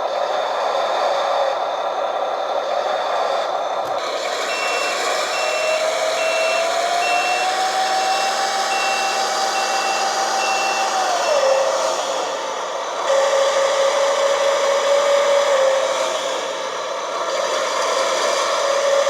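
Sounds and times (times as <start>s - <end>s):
model tractor running hum: 0.0s - 19.0s
reversing alarm beeps: 4.4s - 11.8s.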